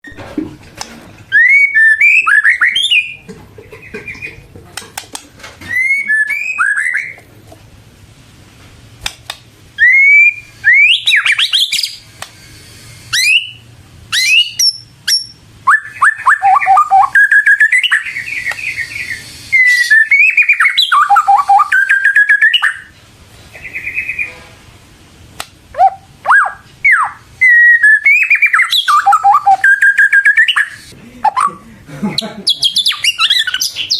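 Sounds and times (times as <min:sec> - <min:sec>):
bird singing whistled phrases: 0:01.3 - 0:03.2, 0:05.7 - 0:07.2, 0:09.8 - 0:12.1, 0:13.0 - 0:22.9, 0:25.8 - 0:31.5, 0:32.5 - 0:33.9.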